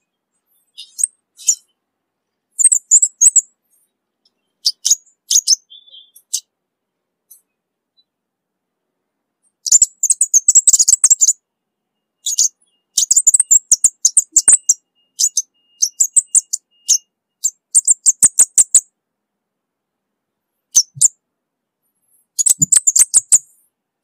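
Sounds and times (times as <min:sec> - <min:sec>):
bird high ticking chirps: 0:00.0 - 0:01.8, 0:02.5 - 0:06.5, 0:09.5 - 0:18.9, 0:20.6 - 0:21.2, 0:22.0 - 0:23.6.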